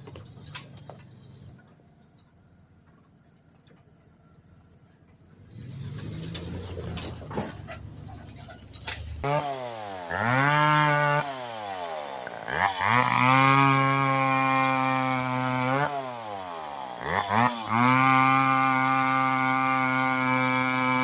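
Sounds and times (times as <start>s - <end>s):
chainsaw revving: 5.4s - 8.1s, 8.8s - 21.0s.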